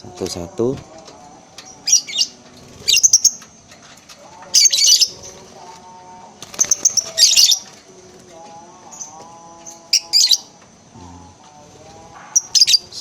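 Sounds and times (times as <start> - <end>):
lovebirds chirping shrilly: 1.7 - 3.4, 4.6 - 5.3, 6.5 - 7.7, 12.3 - 13.0.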